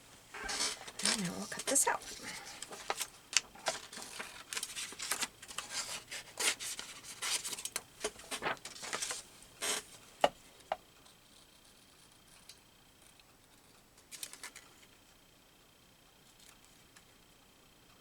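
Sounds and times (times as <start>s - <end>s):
paper rustling and scraping: 0.4s - 10.0s.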